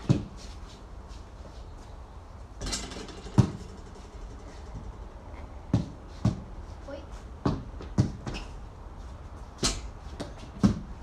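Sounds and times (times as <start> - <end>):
basketball thudding on hard surface: 5.7 - 6.5, 9.6 - 10.9.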